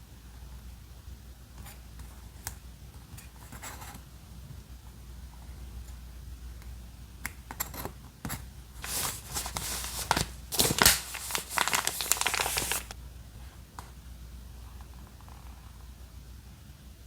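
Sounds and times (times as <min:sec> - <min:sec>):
paper crinkling and tearing: 0:08.8 - 0:13.0.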